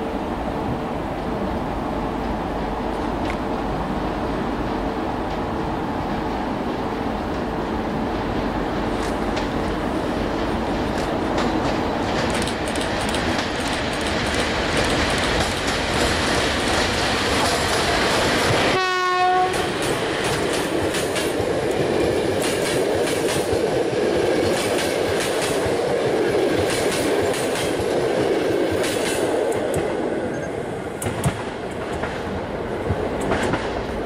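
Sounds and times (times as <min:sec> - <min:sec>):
train wheels rumbling and clicking: 0:00.6 - 0:34.0
train horn blast: 0:18.6 - 0:19.8.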